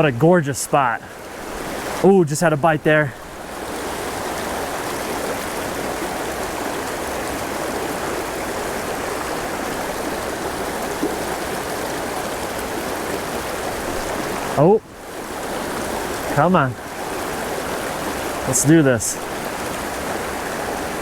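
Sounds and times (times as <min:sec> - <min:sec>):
stream flowing over rocks: 0:00.0 - 0:21.0.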